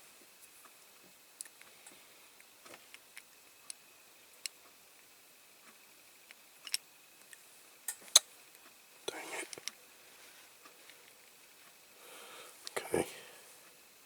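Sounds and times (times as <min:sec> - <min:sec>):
small plastic parts clicking: 0:06.3 - 0:08.2.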